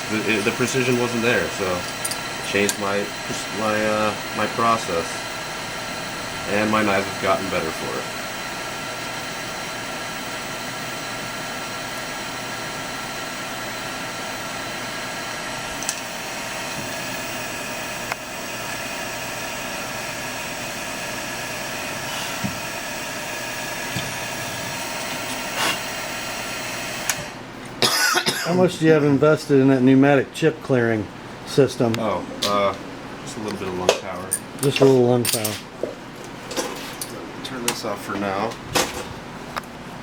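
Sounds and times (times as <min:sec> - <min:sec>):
milling machine whining: 0:00.0 - 0:27.7.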